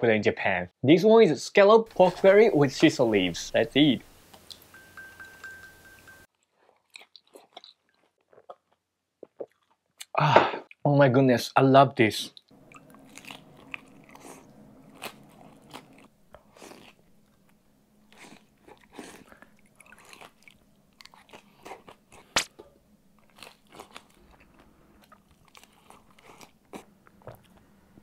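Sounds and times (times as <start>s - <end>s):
crunching and chewing dumplings: 6.3s - 10.2s, 12.5s - 28.0s.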